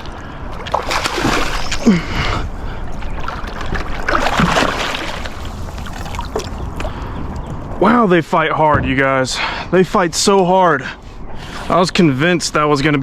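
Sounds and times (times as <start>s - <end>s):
fish thrashing water splashing: 0.6s - 7.0s.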